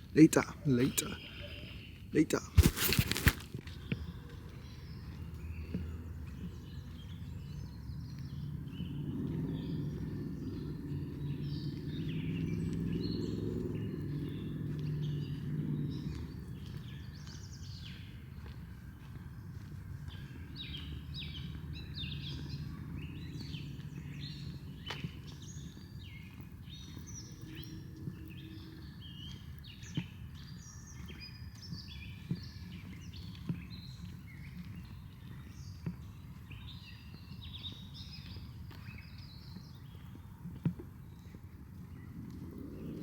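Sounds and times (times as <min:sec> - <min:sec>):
birds chirping and singing: 0:00.0 - 0:40.2
low outdoor rumble: 0:03.9 - 0:17.5.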